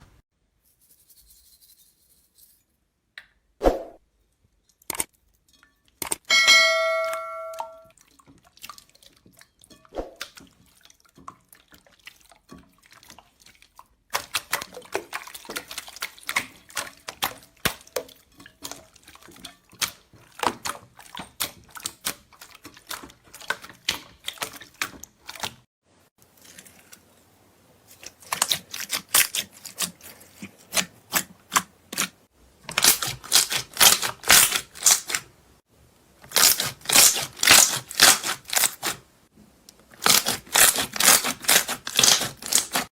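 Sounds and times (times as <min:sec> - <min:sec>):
short ringing ding: 0:06.3 - 0:07.9
slime squishing and crackling: 0:36.3 - 0:39.0, 0:40.0 - 0:42.9.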